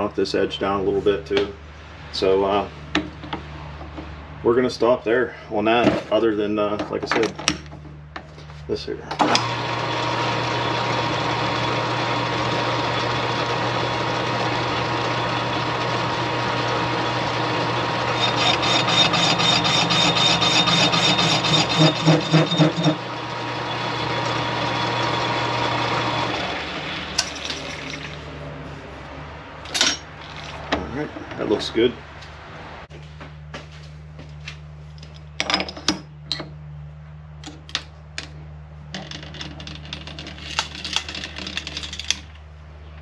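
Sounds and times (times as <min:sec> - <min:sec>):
metal lathe running: 0:09.2 - 0:28.1.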